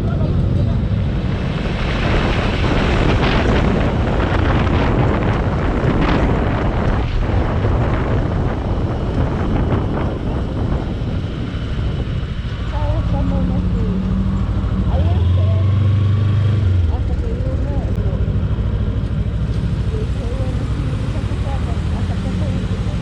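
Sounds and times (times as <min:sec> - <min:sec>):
motorcycle engine and road rumble: 0:00.0 - 0:23.0
wind rushing over microphone: 0:00.0 - 0:23.0.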